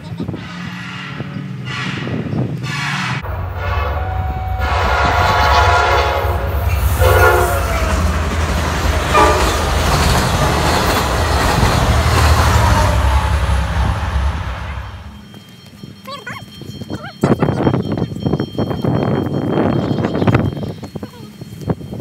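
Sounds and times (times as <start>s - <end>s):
train rumble and wheel noise: 0.0s - 22.0s
train horn blasts: 0.4s - 10.8s.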